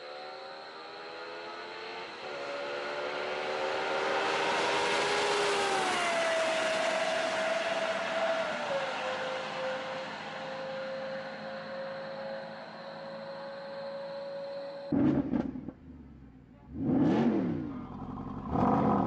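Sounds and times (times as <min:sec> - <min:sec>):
car engine accelerating hard: 0:00.1 - 0:12.5, 0:14.9 - 0:19.0.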